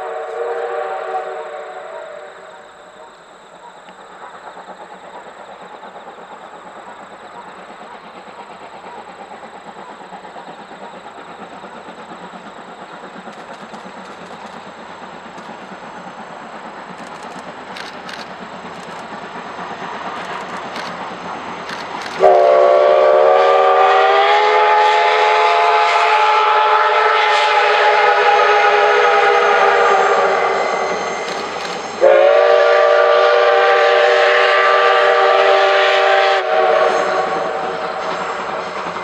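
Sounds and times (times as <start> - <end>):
steam locomotive whistle: 0.0 - 2.9, 21.7 - 39.0
train running noise: 0.0 - 39.0
wheels clicking over rail joints: 3.0 - 22.5.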